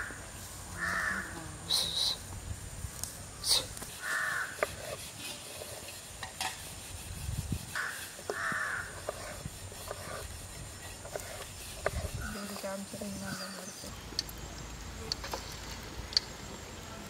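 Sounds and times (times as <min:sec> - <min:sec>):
harsh cawing bird calls: 0:00.8 - 0:01.4, 0:04.0 - 0:04.6, 0:07.7 - 0:09.0.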